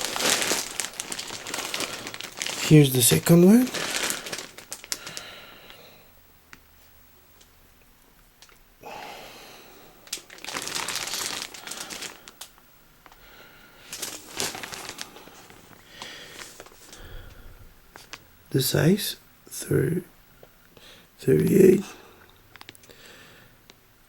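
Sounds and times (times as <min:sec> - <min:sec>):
packaging crinkling and rustling: 0:00.0 - 0:05.8, 0:10.0 - 0:13.2, 0:13.8 - 0:18.3.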